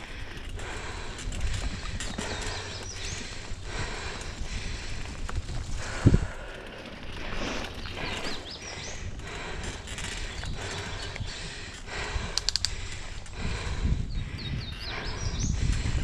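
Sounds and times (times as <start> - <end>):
bike rattling and knocking: 0.0 - 14.0
bike tyres on dirt trail: 0.0 - 16.0
sharp clicks: 9.8 - 13.4.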